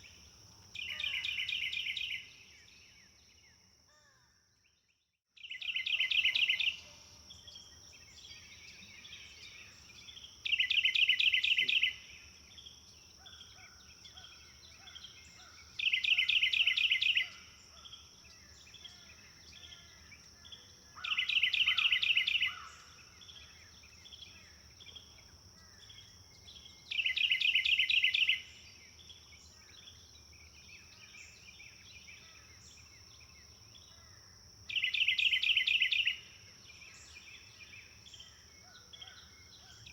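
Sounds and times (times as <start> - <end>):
bird singing fast trill: 0.8 - 2.3, 5.4 - 13.4, 14.1 - 17.9, 18.7 - 25.2, 25.9 - 33.3, 34.7 - 39.9
soft bird chirps: 4.6 - 34.1.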